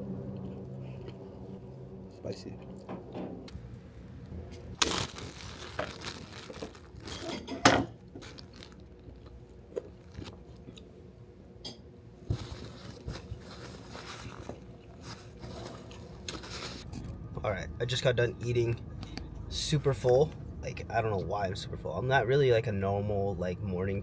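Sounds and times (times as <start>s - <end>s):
person chewing and crunching food: 0.1s - 1.6s, 4.8s - 7.5s, 8.1s - 10.9s, 12.3s - 17.2s.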